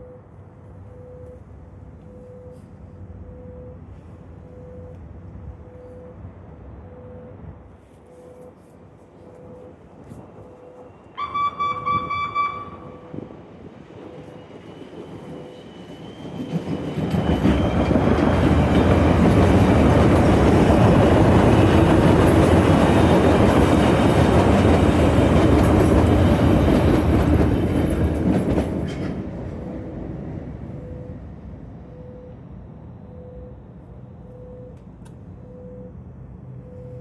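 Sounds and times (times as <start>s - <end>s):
train wheels running on rails: 8.3s - 31.8s
train horn blast: 11.2s - 13.3s.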